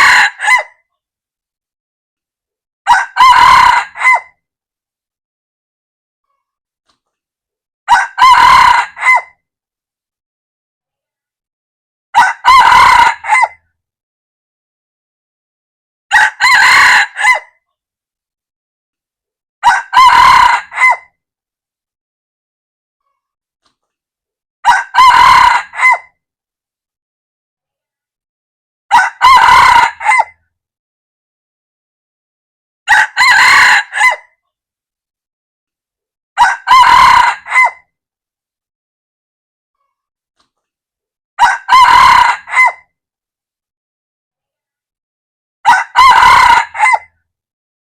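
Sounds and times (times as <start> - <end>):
rooster crowing: 0.0 - 0.7, 2.9 - 4.3, 7.9 - 9.3, 12.2 - 13.6, 16.1 - 17.5, 19.6 - 21.1, 24.6 - 26.1, 28.9 - 30.3, 32.9 - 34.2, 36.4 - 37.8, 41.4 - 42.8, 45.6 - 47.1.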